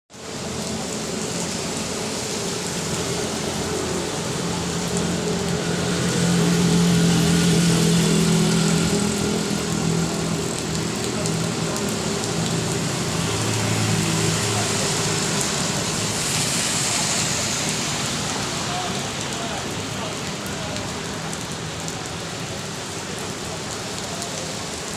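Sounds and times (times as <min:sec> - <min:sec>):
steady rain falling: 0:00.1 - 0:24.9
vehicle engine passing by: 0:01.2 - 0:19.2.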